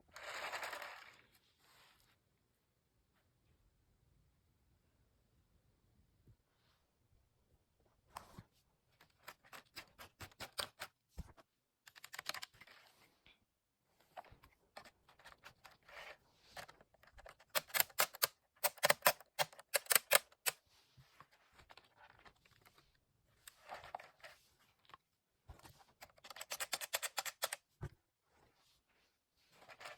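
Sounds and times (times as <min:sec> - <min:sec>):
plastic lego parts clicking: 0:11.9 - 0:12.6, 0:16.6 - 0:20.6, 0:26.0 - 0:27.6.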